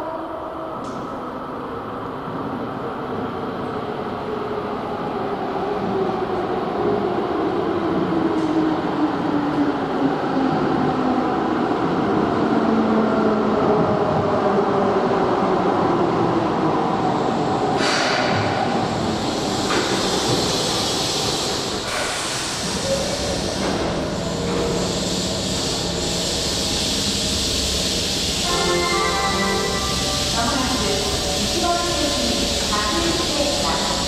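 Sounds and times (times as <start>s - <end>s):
electric train arriving: 0.0s - 34.0s.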